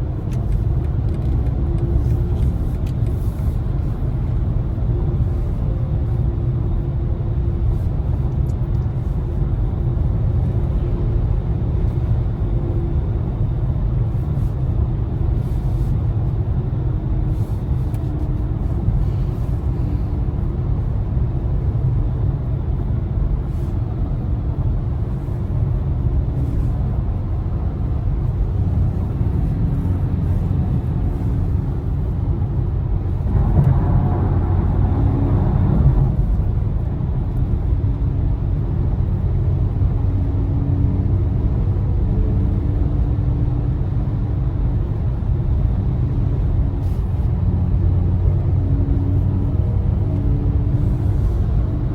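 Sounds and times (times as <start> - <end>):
road and tyre noise: 0.0 - 51.9.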